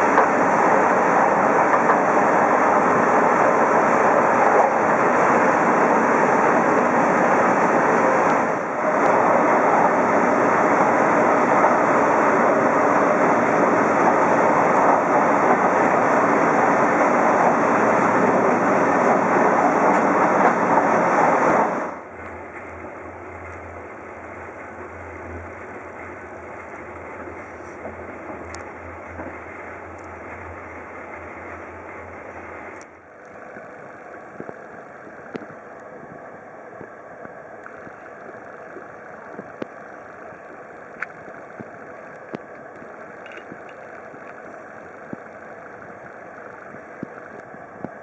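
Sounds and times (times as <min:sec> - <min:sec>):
train rushing noise: 0:00.0 - 0:48.0
faint hum: 0:21.9 - 0:48.0.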